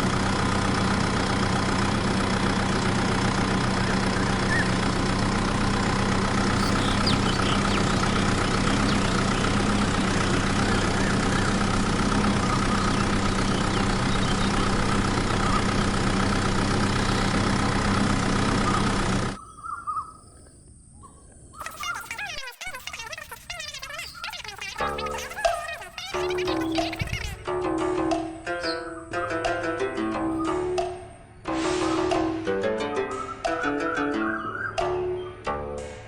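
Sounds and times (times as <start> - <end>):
small engine running: 0.0 - 19.4, 23.5 - 27.4.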